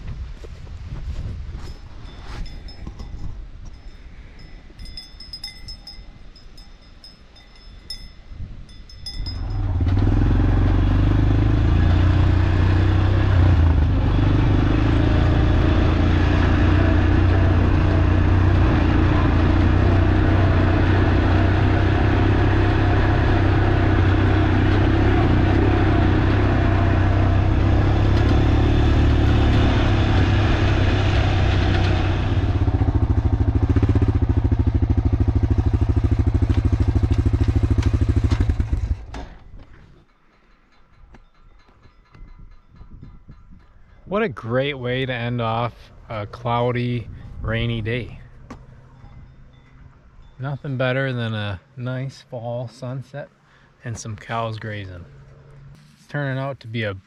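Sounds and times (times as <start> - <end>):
small vehicle engine running: 9.1 - 39.7.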